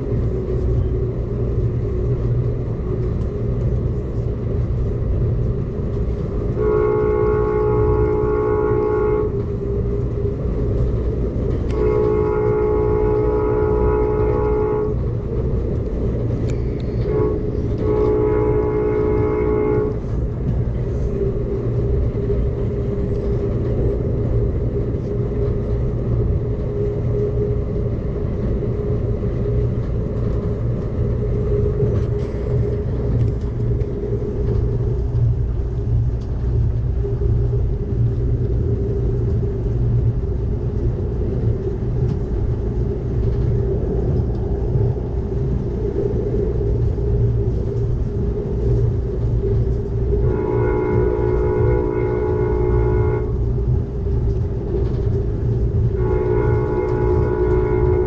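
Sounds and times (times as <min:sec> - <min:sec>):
train wheels rumbling on track: 0:00.0 - 0:58.0
train chime horn blasts: 0:06.5 - 0:09.4, 0:11.7 - 0:15.1, 0:17.0 - 0:20.2, 0:50.2 - 0:53.5, 0:55.9 - 0:58.0.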